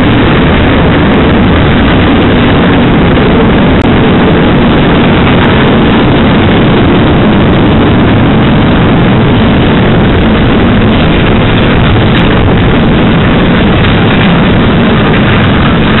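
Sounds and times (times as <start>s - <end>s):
freight train wagons rumbling: 0.0s - 16.0s.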